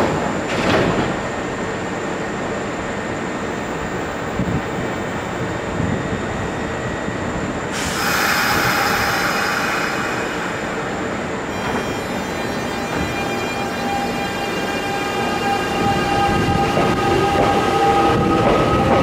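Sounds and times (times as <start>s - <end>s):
train rumble: 0.0s - 19.0s
loud train hiss: 7.6s - 16.6s
steady high tones: 7.8s - 18.2s.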